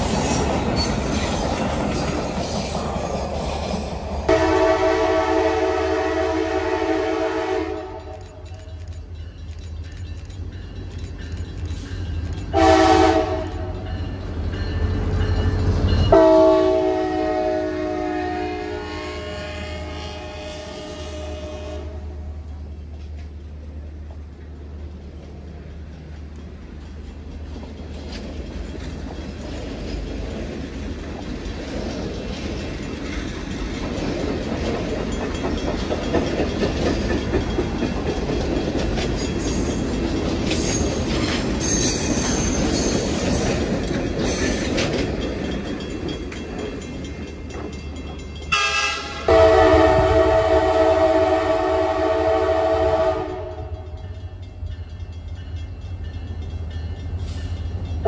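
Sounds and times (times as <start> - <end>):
train wheels on rails: 0.0 - 58.0
locomotive air horn: 4.3 - 8.2, 12.6 - 13.7, 16.1 - 22.3, 48.5 - 54.0.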